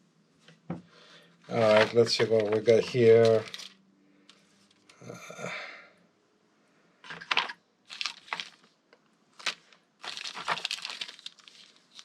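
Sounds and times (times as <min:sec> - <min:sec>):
packaging rustling and crinkling: 0:01.5 - 0:03.8, 0:07.1 - 0:08.8, 0:09.4 - 0:12.0.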